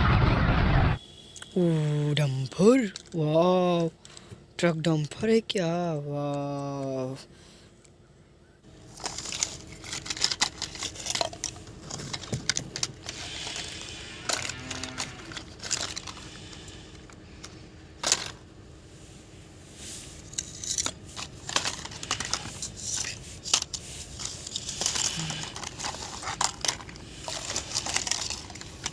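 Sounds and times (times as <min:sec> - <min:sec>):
plastic toys clicking and clattering: 0:02.5 - 0:05.4, 0:06.2 - 0:06.9, 0:08.8 - 0:18.5, 0:20.3 - 0:28.9.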